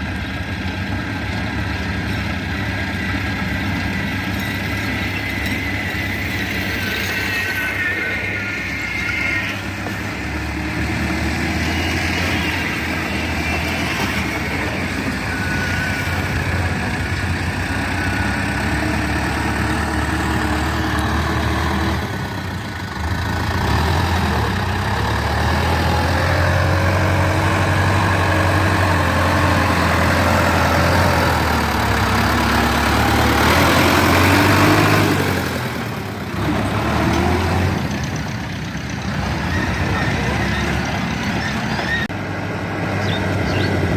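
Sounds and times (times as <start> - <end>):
heavy vehicle engine running: 0.0 - 43.9.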